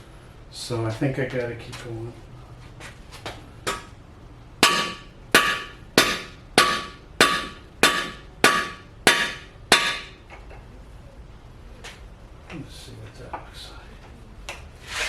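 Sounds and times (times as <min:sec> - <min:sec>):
hammer striking metal bar: 0:04.6 - 0:10.2.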